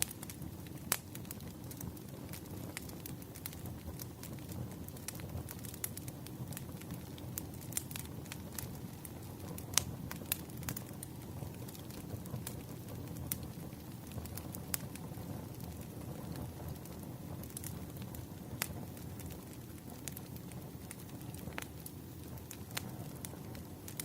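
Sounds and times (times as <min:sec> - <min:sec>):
fire pops and snaps: 0:00.0 - 0:24.0
firewood crackling: 0:00.0 - 0:24.0
low rush of flame: 0:00.0 - 0:24.0.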